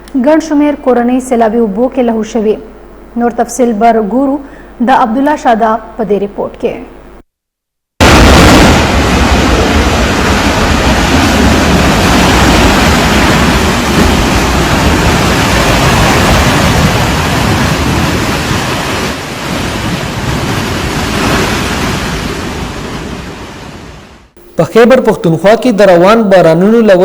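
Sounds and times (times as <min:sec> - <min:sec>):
river in flood rushing: 0:08.0 - 0:22.8.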